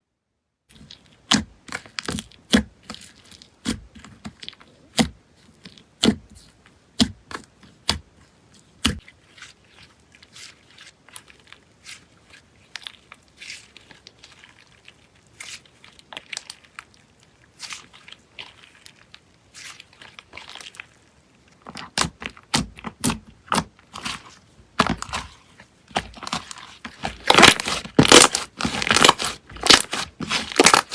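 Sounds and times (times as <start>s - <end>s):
slime popping and crackling: 21.6s - 30.9s.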